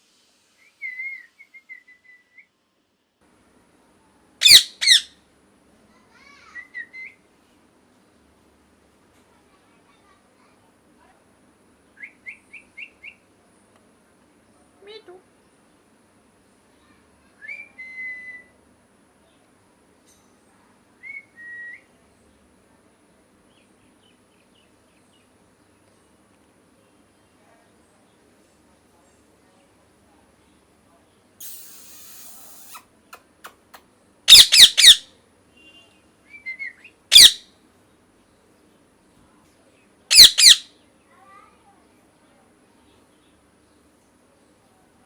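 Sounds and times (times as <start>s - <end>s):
faint hiss: 0.0s - 4.3s, 26.7s - 34.0s
bird harsh squawking calls: 4.4s - 5.1s, 31.4s - 32.8s, 34.3s - 35.1s, 37.1s - 37.4s, 40.1s - 40.6s
soft bird chirps: 31.4s - 33.7s.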